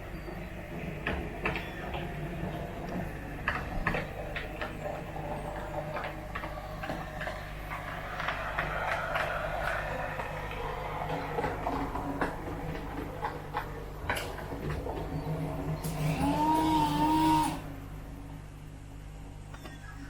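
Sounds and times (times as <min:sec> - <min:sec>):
steady low hum: 0:00.0 - 0:20.0
model train wheels clicking: 0:02.9 - 0:15.1.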